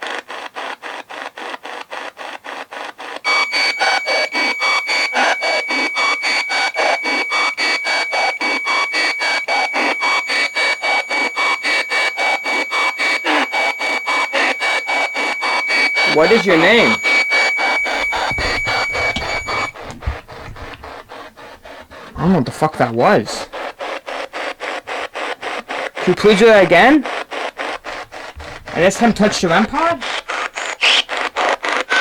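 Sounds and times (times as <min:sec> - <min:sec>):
radio static in rapid bursts: 0:03.3 - 0:21.0, 0:27.9 - 0:32.0
high-pitched whine: 0:03.3 - 0:21.2, 0:27.9 - 0:31.1.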